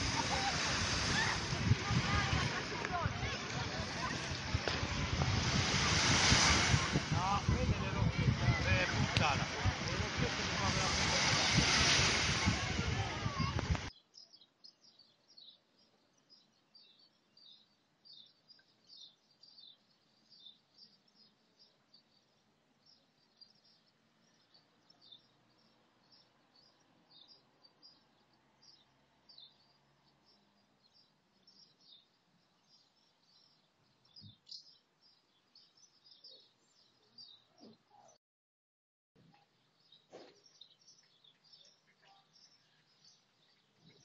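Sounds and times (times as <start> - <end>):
wind noise rushing: 0.0 - 13.9
small birds chirping: 0.0 - 38.2, 39.2 - 44.0.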